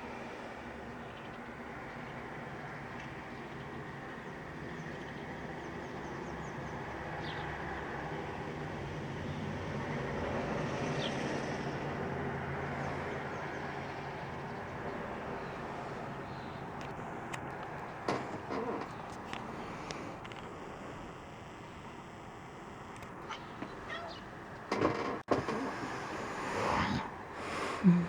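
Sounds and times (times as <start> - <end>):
sharp clicks: 16.8 - 25.8
bird chirps: 23.2 - 24.4.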